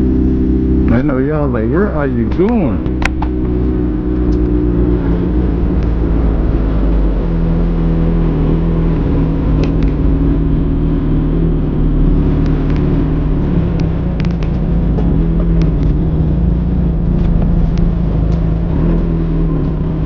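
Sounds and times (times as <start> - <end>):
motorcycle engine cruising: 0.0 - 20.0
road and wind noise: 0.0 - 20.0.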